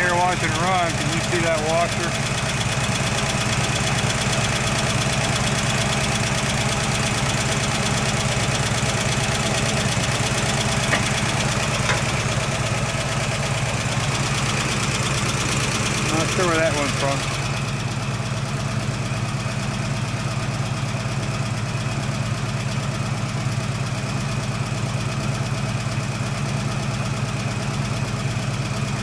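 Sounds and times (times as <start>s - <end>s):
car engine idling: 0.0s - 29.0s
light regular engine tick: 0.2s - 19.3s.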